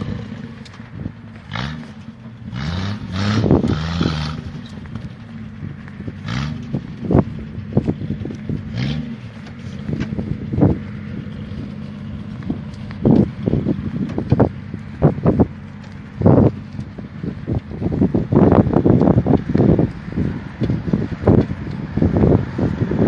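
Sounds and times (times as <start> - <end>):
engine revving: 0.0 - 23.0.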